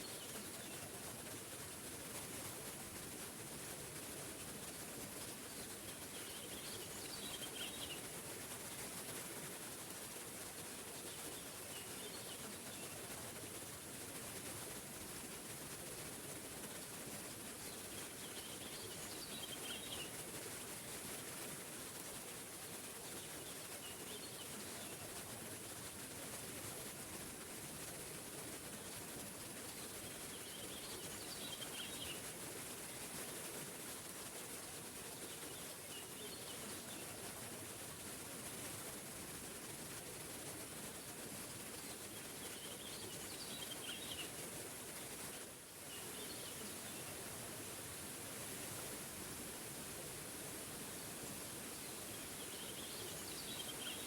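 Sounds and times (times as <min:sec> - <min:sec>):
songbird chirping: 0:51.8 - 0:54.0.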